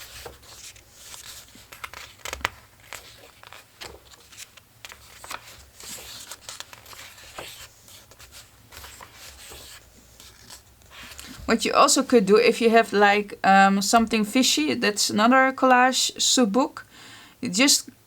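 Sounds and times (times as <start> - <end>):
paper pages being turned: 0.0 - 12.2.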